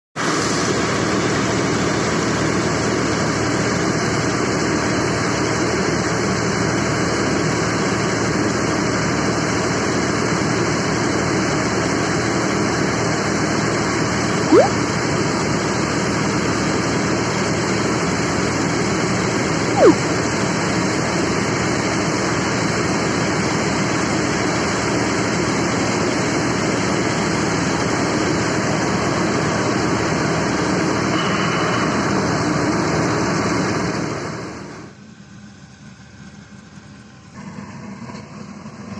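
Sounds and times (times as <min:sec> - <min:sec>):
brief squeaks: 0:14.5 - 0:14.8, 0:19.7 - 0:20.0.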